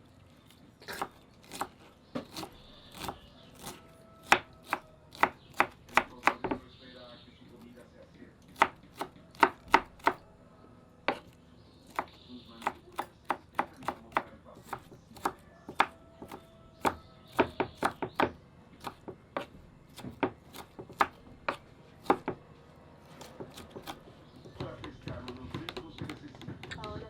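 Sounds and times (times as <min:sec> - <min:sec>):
knife chopping on a board: 0:00.8 - 0:06.6, 0:08.5 - 0:10.2, 0:11.1 - 0:22.4, 0:23.0 - 0:27.0.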